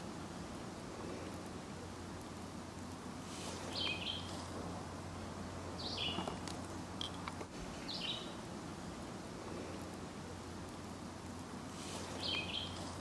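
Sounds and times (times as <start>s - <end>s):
outdoor background hiss: 0.0s - 13.0s
bird calling: 3.6s - 4.4s, 5.8s - 6.4s, 12.1s - 12.8s.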